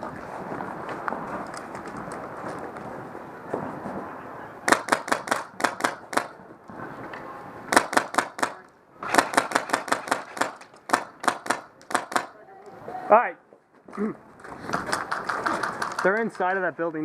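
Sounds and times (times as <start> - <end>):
airsoft rifle rapid shots: 4.7 - 6.3, 7.7 - 12.4.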